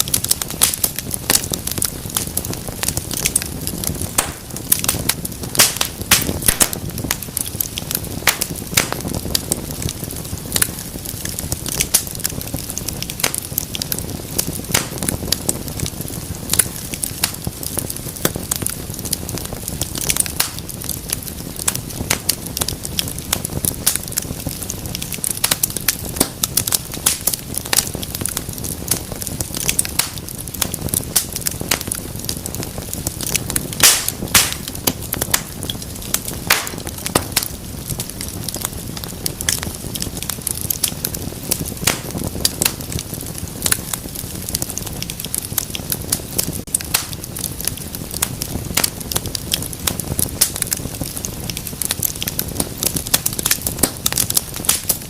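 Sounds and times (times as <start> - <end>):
low rumble of flames: 0.0 - 55.0
wood fire crackling and popping: 0.0 - 55.0.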